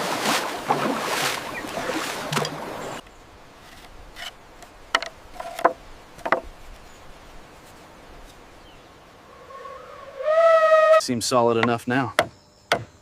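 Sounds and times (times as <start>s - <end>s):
bamboo poles knocking together: 3.6s - 6.9s, 11.6s - 12.9s.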